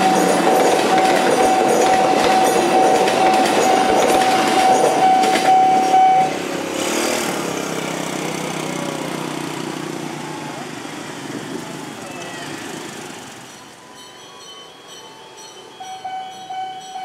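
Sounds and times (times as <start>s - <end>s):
train wheels clacking over rail joints: 0.0s - 6.1s
steady high tone: 0.0s - 6.4s, 13.5s - 17.0s.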